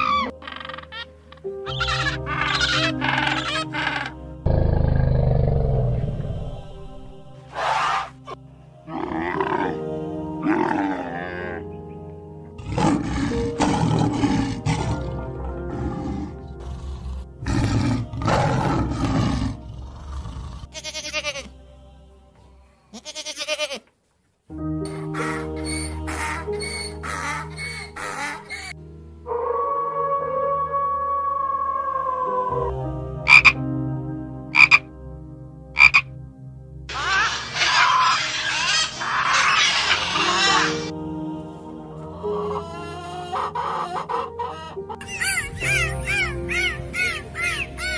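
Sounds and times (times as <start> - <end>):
drawn-out animal calls: 0.0 - 4.2, 33.3 - 33.6, 34.6 - 34.8, 42.3 - 47.9
background music: 0.0 - 23.6, 24.5 - 47.9
loud rough animal roar: 4.4 - 8.1, 8.9 - 9.8, 12.6 - 20.7
frog croaking: 33.2 - 33.6, 34.5 - 34.9, 35.7 - 36.2.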